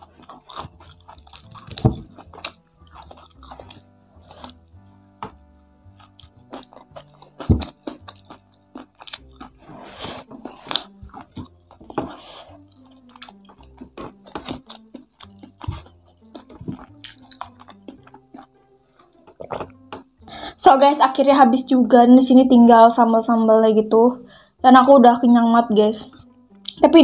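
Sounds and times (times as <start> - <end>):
chewing and crunching: 0.0 - 20.2
quiet background music: 0.0 - 27.0.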